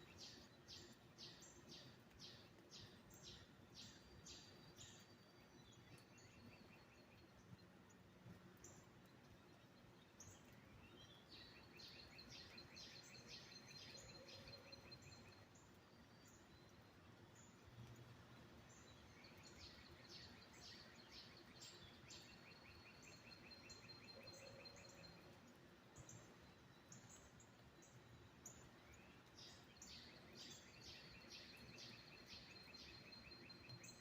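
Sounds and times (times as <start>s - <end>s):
songbird singing repeated notes: 0.0s - 34.0s.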